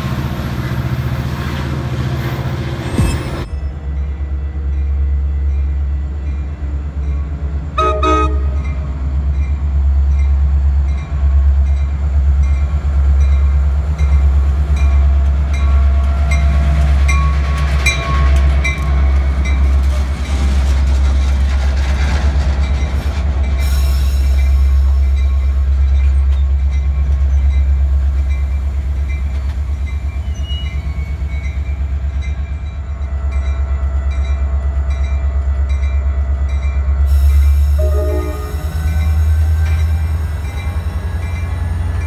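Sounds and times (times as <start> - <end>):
diesel locomotive engine drone: 0.0 - 42.0
locomotive bell ringing: 3.0 - 20.4, 22.6 - 42.0
train horn toot: 7.8 - 8.8, 37.3 - 41.8.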